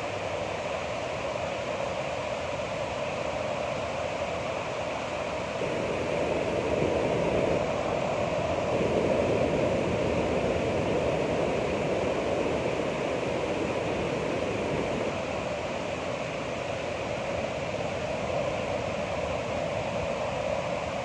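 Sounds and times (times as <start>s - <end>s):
ocean waves washing in: 5.6s - 16.6s.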